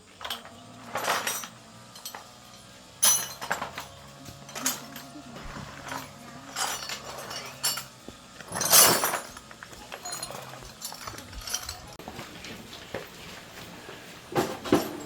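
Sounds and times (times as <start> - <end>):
light metallic clinks: 0.0 - 12.0.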